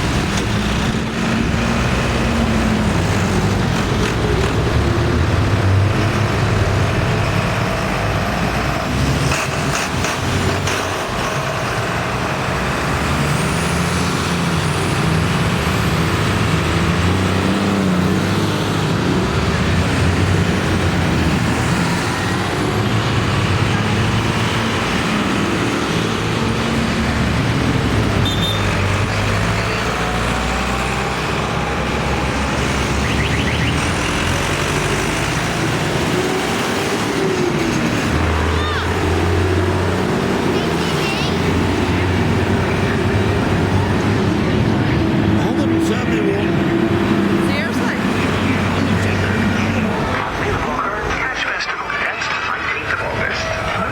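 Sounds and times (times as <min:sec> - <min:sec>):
tractors driving past: 0:00.0 - 0:53.9.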